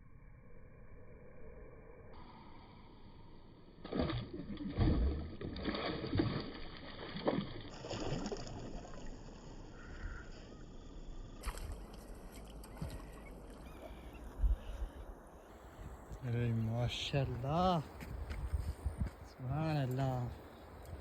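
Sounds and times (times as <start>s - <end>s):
faint water sounds: 2.1s - 21.0s
fish splashing in water: 3.8s - 9.4s.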